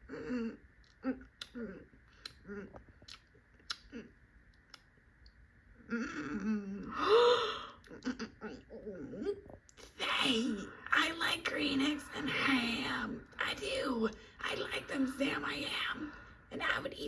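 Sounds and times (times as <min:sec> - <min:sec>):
mouth clicks: 0:00.8 - 0:05.4.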